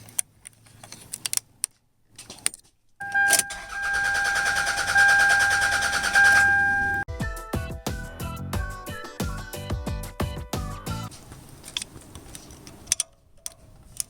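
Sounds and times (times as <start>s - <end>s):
engine starter cranking: 3.0s - 7.0s
keys clicking and jingling: 3.0s - 7.0s.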